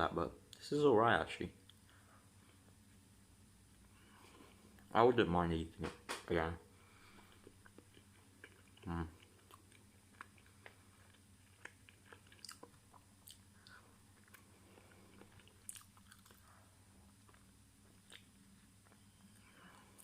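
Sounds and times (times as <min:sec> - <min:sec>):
person chewing: 0:07.0 - 0:20.0.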